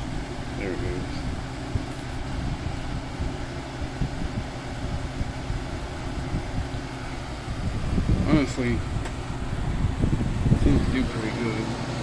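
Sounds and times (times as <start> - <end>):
air conditioner running: 0.0 - 12.0.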